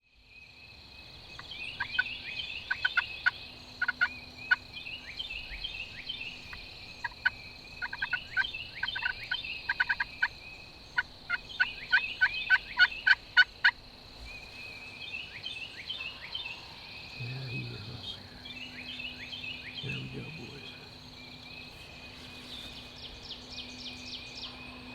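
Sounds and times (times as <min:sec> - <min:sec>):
turkey gobbling: 0:02.7 - 0:04.1, 0:07.0 - 0:07.2, 0:07.8 - 0:08.2, 0:08.8 - 0:10.3, 0:11.3 - 0:13.8.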